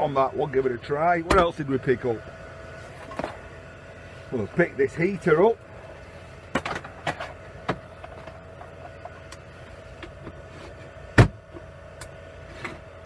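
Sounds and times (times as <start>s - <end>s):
faint steady hum: 0.0s - 13.0s
heater thumping down: 4.3s - 11.7s
heater handling knocks and clicks: 11.2s - 12.2s.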